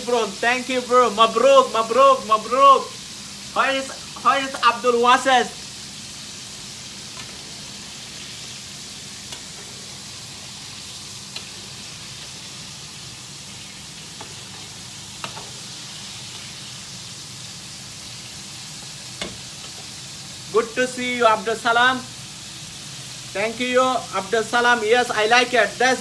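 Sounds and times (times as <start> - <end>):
chicken frying in oil: 0.0 - 26.0.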